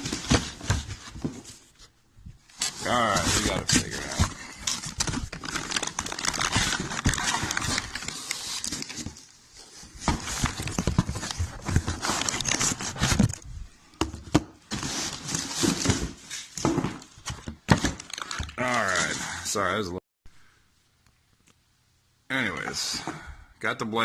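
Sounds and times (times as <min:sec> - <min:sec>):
plastic and cardboard crinkling: 0:00.0 - 0:19.5.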